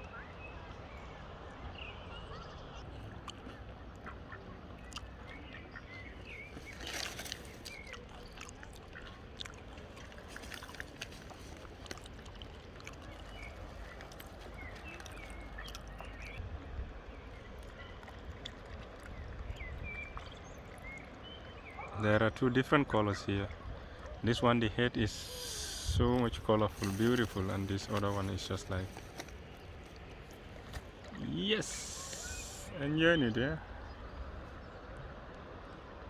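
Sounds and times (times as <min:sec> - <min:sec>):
river water lapping at bank: 0:00.0 - 0:36.0
faint bird calls: 0:23.5 - 0:35.8.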